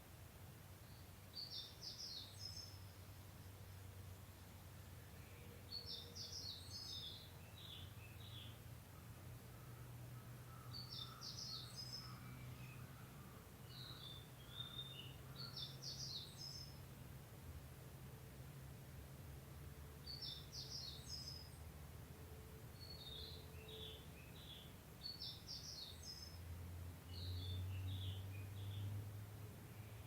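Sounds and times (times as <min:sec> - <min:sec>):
songbird chattering: 0:10.5 - 0:12.9.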